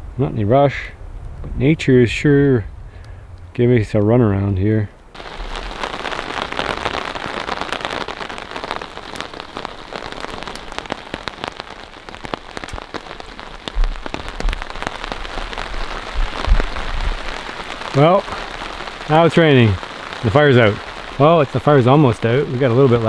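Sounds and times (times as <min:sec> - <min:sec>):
raindrops striking close by: 0:00.0 - 0:23.0
steady rain falling: 0:00.0 - 0:23.0
low thumps: 0:13.5 - 0:17.3.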